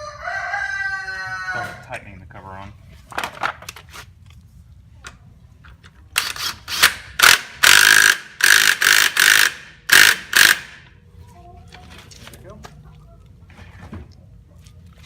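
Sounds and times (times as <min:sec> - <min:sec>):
impact driver bursts: 0:06.2 - 0:10.8.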